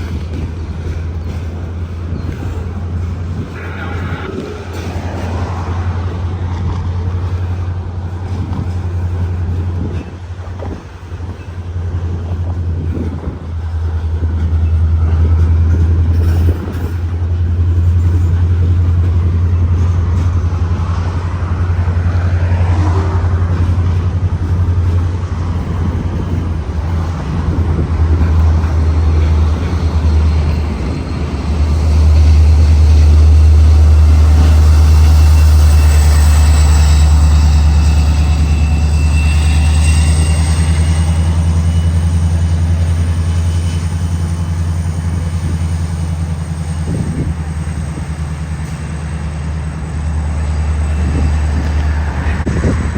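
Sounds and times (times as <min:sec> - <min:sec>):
diesel locomotive engine rumble: 0:00.0 - 0:52.9.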